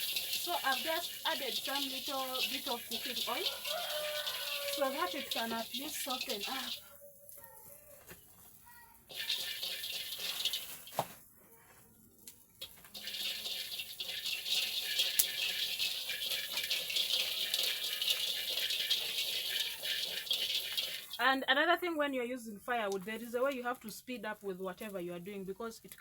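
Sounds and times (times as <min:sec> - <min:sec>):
firewood fire crackling: 0:00.0 - 0:11.4, 0:12.1 - 0:21.3.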